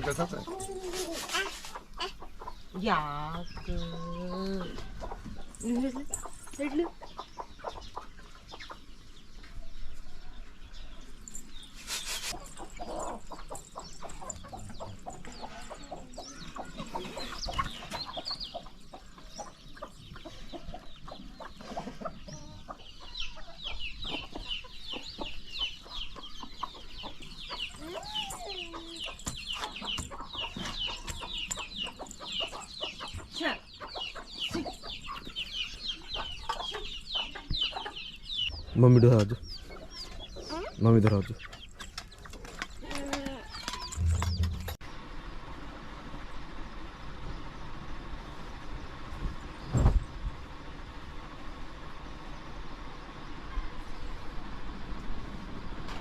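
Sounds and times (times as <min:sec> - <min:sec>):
chickens clucking: 0:00.0 - 0:10.5, 0:11.5 - 0:44.8
knocks and clicks: 0:44.0 - 0:44.8.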